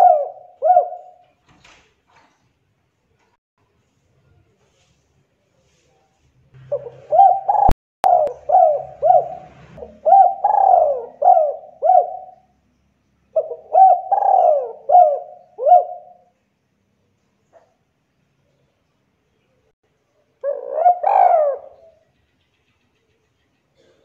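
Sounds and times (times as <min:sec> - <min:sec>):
dove cooing: 0:00.0 - 0:01.2, 0:06.6 - 0:12.5, 0:13.4 - 0:16.3, 0:20.4 - 0:22.1.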